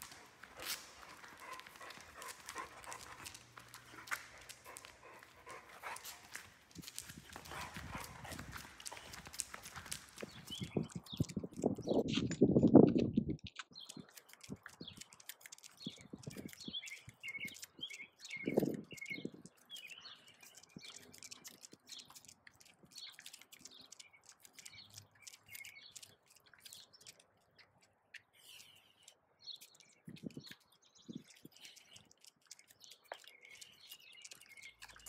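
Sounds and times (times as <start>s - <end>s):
footsteps on concrete: 0.0s - 13.7s
birds chirping and tweeting: 0.0s - 35.0s.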